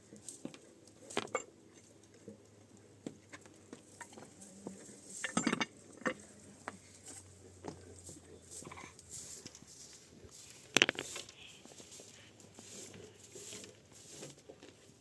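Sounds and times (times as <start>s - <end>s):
objects clinking and knocking: 5.2s - 6.2s.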